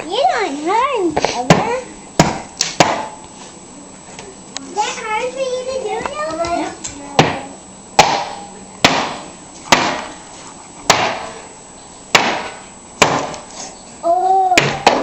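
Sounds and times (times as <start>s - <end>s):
hammer striking wood: 1.5s - 3.2s, 8.0s - 10.2s, 10.9s - 11.4s, 12.1s - 13.4s, 14.6s - 15.0s.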